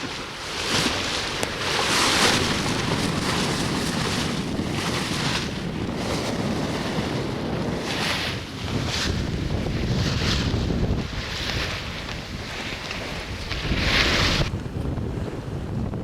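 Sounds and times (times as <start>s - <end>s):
water splashing past hull: 0.0s - 15.6s
wind buffeting microphone: 0.0s - 16.0s.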